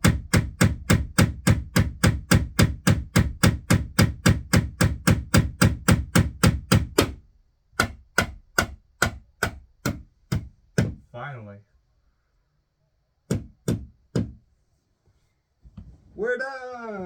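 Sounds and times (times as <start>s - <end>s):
hammer striking a nail: 0.0s - 7.2s, 7.8s - 11.0s, 13.3s - 14.4s.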